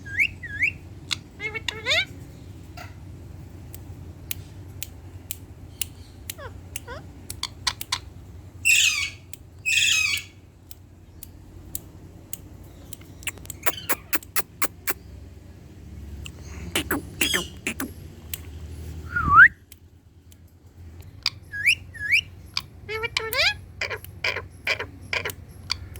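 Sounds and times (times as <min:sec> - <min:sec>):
parrot squawking: 0:00.1 - 0:02.2, 0:06.4 - 0:10.4, 0:13.3 - 0:15.0, 0:16.6 - 0:18.0, 0:21.5 - 0:25.9
short sharp clicks: 0:12.9 - 0:15.0.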